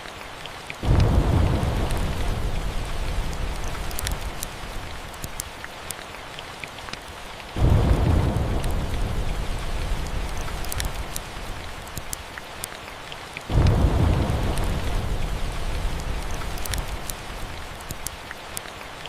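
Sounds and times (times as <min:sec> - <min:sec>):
steady rain: 0:00.0 - 0:19.0
thunder rumbling: 0:00.8 - 0:05.4, 0:07.6 - 0:12.2, 0:13.5 - 0:18.1
fireplace crackling: 0:00.8 - 0:06.0, 0:06.9 - 0:12.4, 0:13.5 - 0:18.6.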